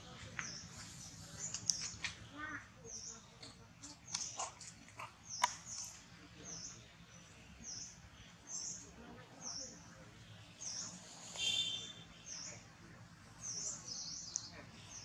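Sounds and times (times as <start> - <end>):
small bird chirping: 0.2 - 9.8, 10.5 - 12.6.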